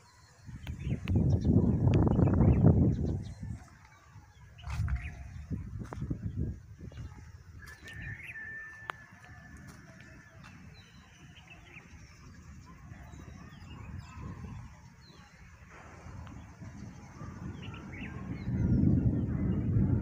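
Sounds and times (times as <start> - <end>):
bird chirps: 0.0 - 19.8
bird whistle-like call: 7.6 - 9.0.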